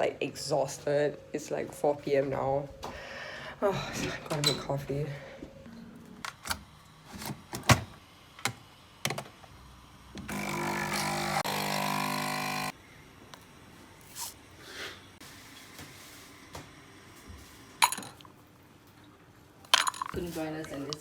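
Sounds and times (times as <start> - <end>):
small electric appliance motor: 10.1 - 12.8.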